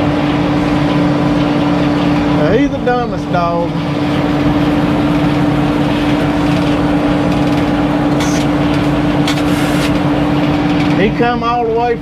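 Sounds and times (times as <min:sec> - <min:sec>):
sawmill machinery humming: 0:00.0 - 0:12.0
brief hissing: 0:09.4 - 0:10.0.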